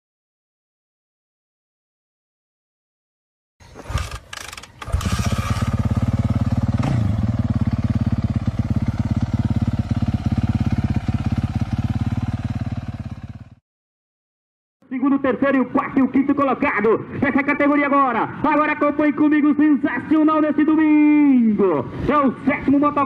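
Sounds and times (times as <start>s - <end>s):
motocross motorcycle engines droning: 3.6s - 13.5s.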